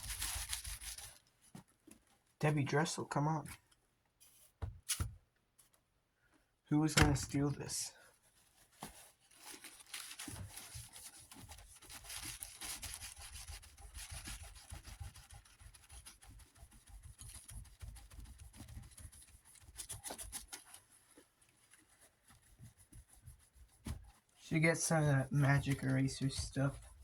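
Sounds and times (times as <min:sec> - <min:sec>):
paper towel rubbing on metal: 0:08.3 - 0:21.2, 0:21.8 - 0:27.0.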